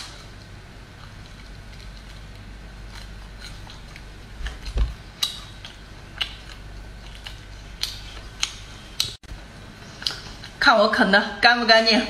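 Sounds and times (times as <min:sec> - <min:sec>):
crunchy chewing of bone: 0:00.0 - 0:09.2.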